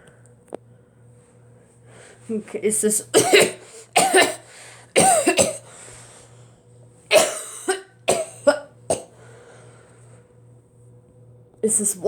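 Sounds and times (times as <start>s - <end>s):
ceiling fan humming: 0.0s - 12.0s
person coughing: 3.2s - 5.7s, 7.1s - 9.1s.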